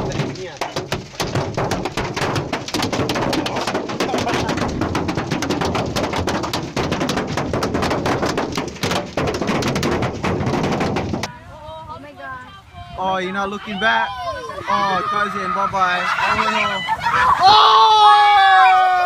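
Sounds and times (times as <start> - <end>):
storm pelting hard surface: 0.0 - 11.3.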